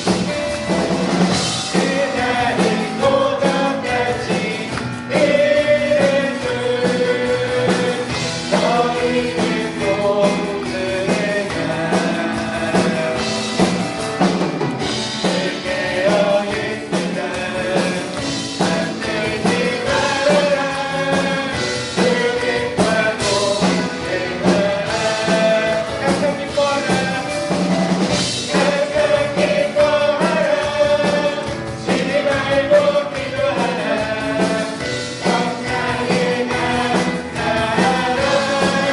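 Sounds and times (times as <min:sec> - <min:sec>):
band playing with steady beat: 0:00.0 - 0:38.9
group singing worship song: 0:00.0 - 0:38.9.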